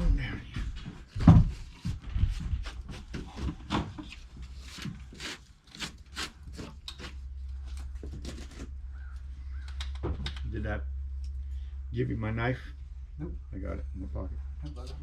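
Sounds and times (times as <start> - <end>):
steady low rumble: 0.0 - 1.0, 8.7 - 15.0
hands and tools scraping: 2.3 - 10.0.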